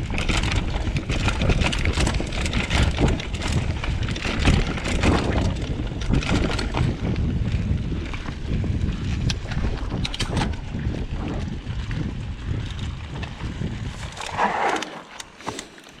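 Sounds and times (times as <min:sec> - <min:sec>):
wind buffeting microphone: 0:00.0 - 0:14.8
bike rattling over dirt trail: 0:00.0 - 0:16.0
scuff: 0:14.3 - 0:16.0.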